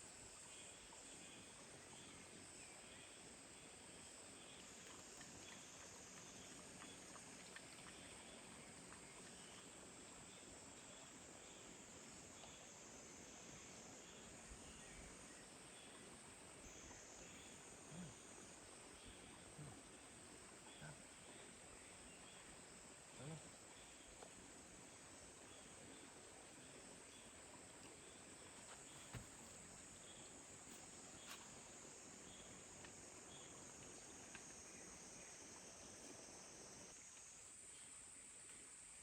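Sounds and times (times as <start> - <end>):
faint chirps: 16.6 - 24.3.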